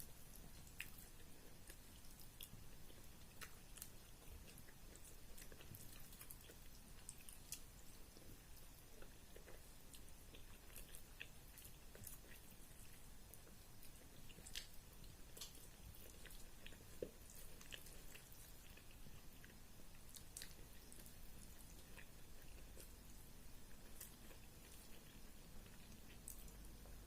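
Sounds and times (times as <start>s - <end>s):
chewing food: 0.0s - 27.0s.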